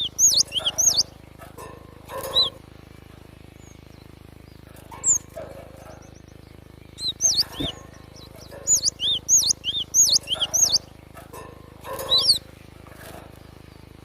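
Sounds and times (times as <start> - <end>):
bird whistled notes: 0.0 - 1.2, 7.0 - 10.9.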